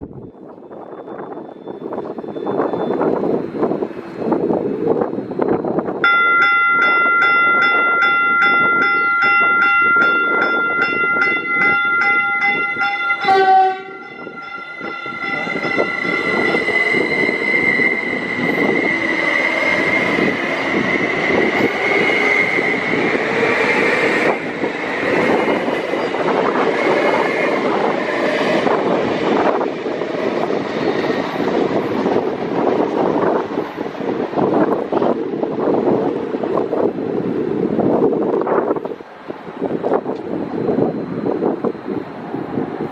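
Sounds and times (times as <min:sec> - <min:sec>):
train wheels on rails: 0:00.3 - 0:42.9
high whine: 0:04.8 - 0:33.8
train horn: 0:13.1 - 0:16.7.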